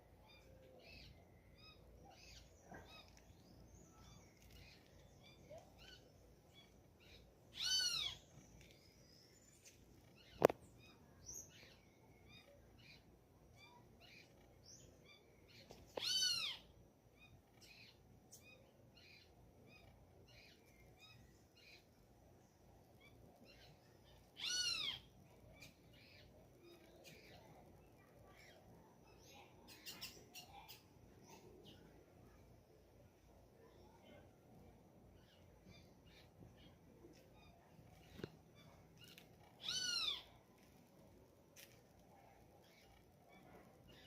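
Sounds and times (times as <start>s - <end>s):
faint bird chirps: 0.0s - 44.0s
bird loud arching call: 39.6s - 40.3s.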